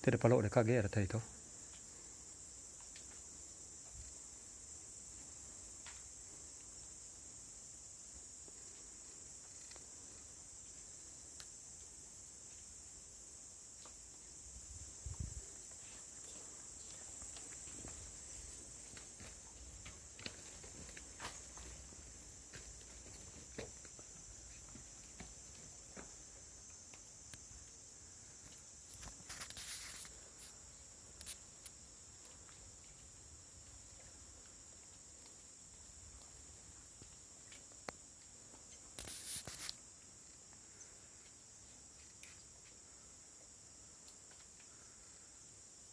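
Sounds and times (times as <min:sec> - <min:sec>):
high-pitched hiss: 0:00.0 - 0:45.9
high-pitched insect drone: 0:21.2 - 0:32.6.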